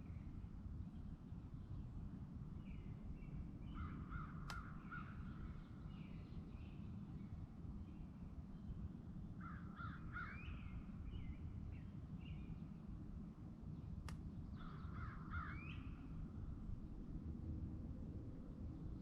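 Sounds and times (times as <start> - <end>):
steady low rumble: 13.0 - 19.0.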